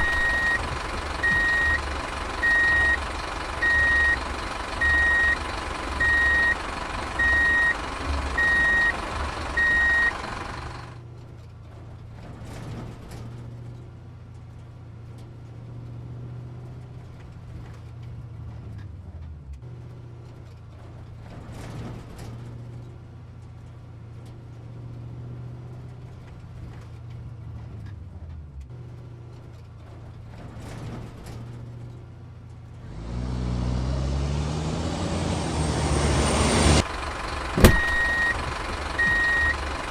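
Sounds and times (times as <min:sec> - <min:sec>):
truck reversing alarm beeping: 0:00.0 - 0:03.0, 0:03.6 - 0:04.2, 0:04.8 - 0:05.4, 0:06.0 - 0:06.6, 0:07.2 - 0:07.8, 0:08.4 - 0:10.2, 0:37.6 - 0:39.6
engine running: 0:00.0 - 0:39.9
engine rising in pitch: 0:32.9 - 0:36.9.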